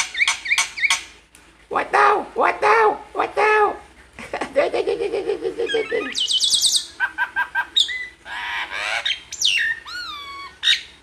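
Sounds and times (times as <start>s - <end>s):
pet bird chirping and squawking: 0.0s - 1.1s, 5.6s - 11.0s.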